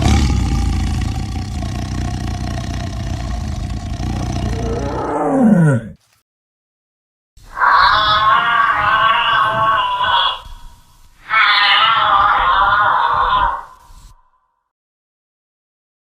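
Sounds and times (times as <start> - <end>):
lion roaring: 0.0 - 6.0.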